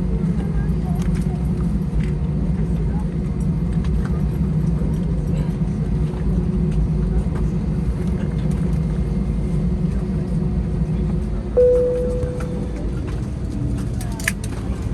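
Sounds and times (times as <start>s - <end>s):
low airplane cabin rumble: 0.0s - 14.9s
cabin chime: 11.6s - 12.8s.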